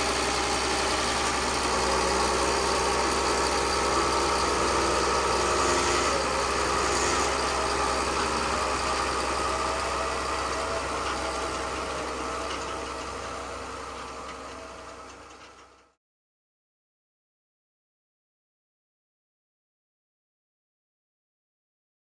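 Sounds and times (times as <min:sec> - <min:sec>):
model machine mechanical drone: 0:00.0 - 0:15.9.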